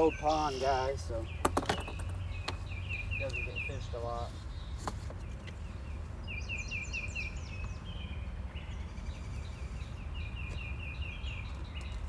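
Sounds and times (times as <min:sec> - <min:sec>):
bird high chirps: 0:00.0 - 0:05.4.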